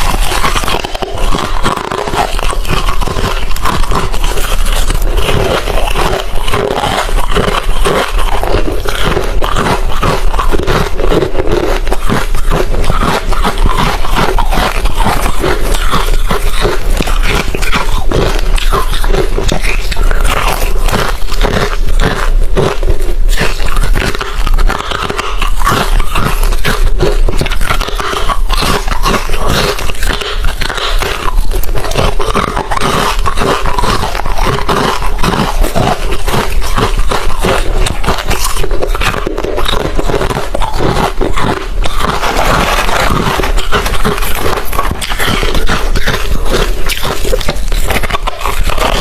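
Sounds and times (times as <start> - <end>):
chewing crunchy ice: 0.0 - 49.0.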